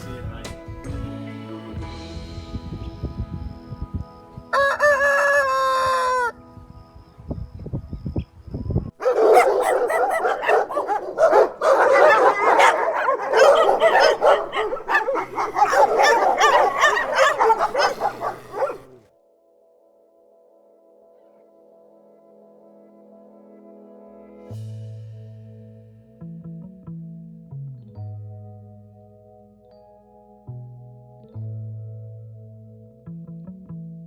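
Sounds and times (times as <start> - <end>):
rooster crowing: 4.6 - 6.3, 9.0 - 18.8
fowl clucking and squawking: 9.0 - 18.8.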